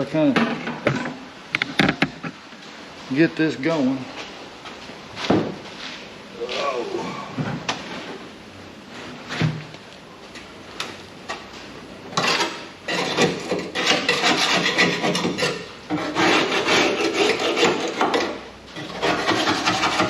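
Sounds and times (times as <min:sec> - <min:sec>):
grinder rasping against sheet steel: 0:12.2 - 0:20.0.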